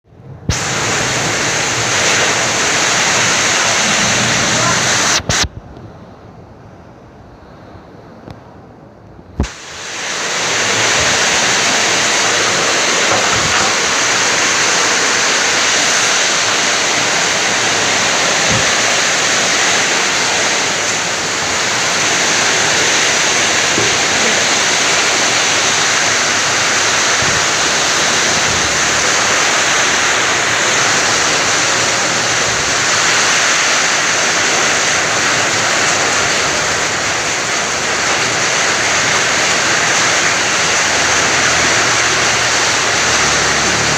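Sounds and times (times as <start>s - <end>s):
heavy wind-driven rain: 0.0s - 43.9s.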